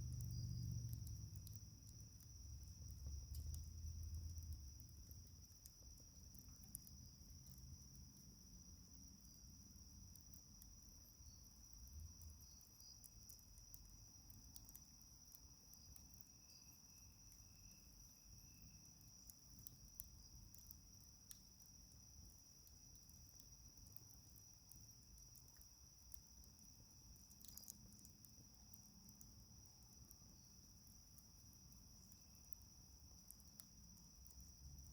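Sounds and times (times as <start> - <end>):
night insect chorus chirring: 0.0 - 34.9
wood fire crackling: 0.1 - 7.8.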